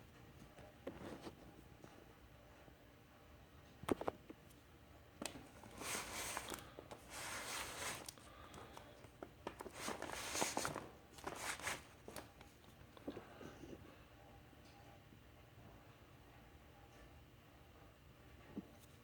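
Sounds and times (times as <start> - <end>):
packaging rustling and scraping: 5.3 - 12.5.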